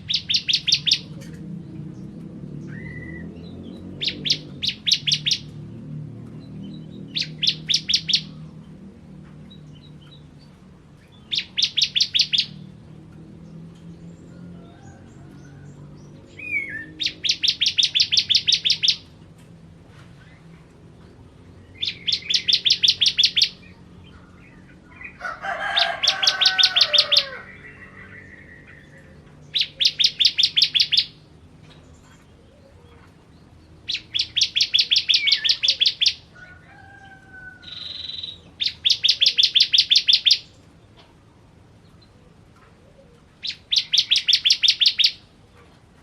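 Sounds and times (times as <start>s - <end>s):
lower whistled bird calls: 0.0s - 1.2s, 4.0s - 5.5s, 7.1s - 8.4s, 11.2s - 12.6s, 16.3s - 19.1s, 21.8s - 23.6s, 26.0s - 31.2s, 33.9s - 36.2s, 37.6s - 40.5s, 43.4s - 45.3s
bird rapid high chipping notes: 0.0s - 1.4s, 7.0s - 8.4s, 11.2s - 12.6s, 16.4s - 19.1s, 21.7s - 23.7s, 29.5s - 31.2s, 33.9s - 36.3s, 43.4s - 45.3s.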